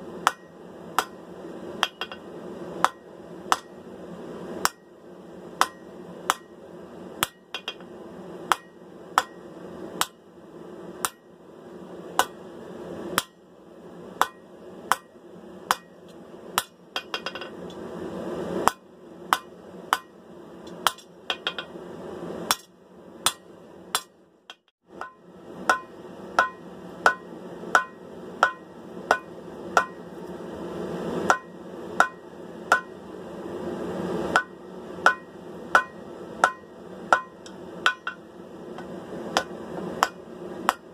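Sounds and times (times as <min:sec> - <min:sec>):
hammer striking hot steel on anvil: 0:00.2 - 0:03.8, 0:04.6 - 0:04.9, 0:05.6 - 0:06.6, 0:07.2 - 0:10.3, 0:11.0 - 0:11.3, 0:12.2 - 0:12.4, 0:13.1 - 0:13.5, 0:14.2 - 0:17.8, 0:18.6 - 0:21.8, 0:22.4 - 0:30.1, 0:31.3 - 0:33.0, 0:34.3 - 0:40.9.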